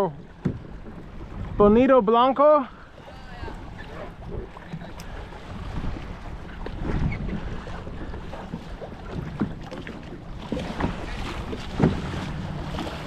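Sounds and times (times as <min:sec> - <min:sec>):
wind buffeting microphone: 0:00.0 - 0:02.1, 0:02.9 - 0:13.0
water moving around kayak: 0:00.0 - 0:13.0.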